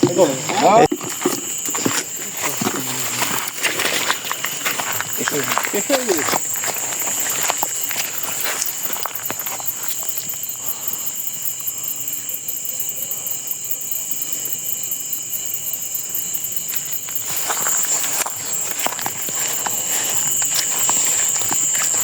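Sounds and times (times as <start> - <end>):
footsteps: 0.0 - 10.4, 16.6 - 22.0
crickets chirring: 0.0 - 22.0
rustling: 16.7 - 22.0.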